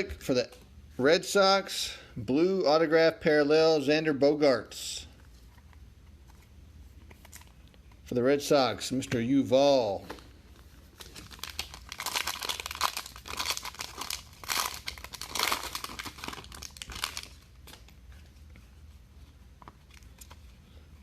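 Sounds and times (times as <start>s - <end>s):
plastic wrapper crinkling: 10.0s - 18.0s.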